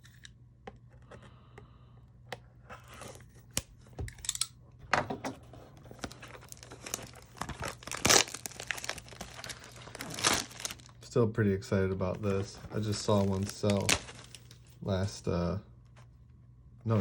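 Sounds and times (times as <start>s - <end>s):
plastic wrap crinkling and tearing: 5.9s - 11.0s, 12.1s - 14.7s
knife slitting plastic wrap: 6.5s - 10.9s, 12.9s - 14.5s.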